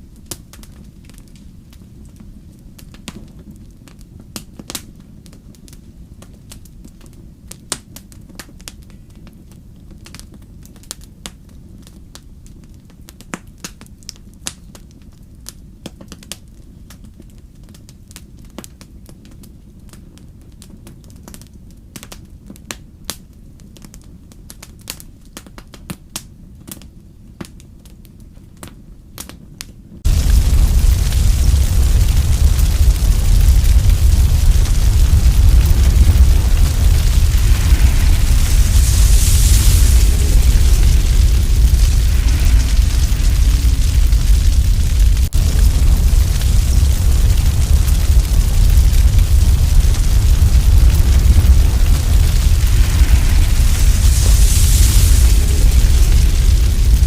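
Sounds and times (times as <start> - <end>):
low rumble of flame: 0.0 - 25.7, 29.1 - 57.0
wood fire crackling: 30.0 - 57.0.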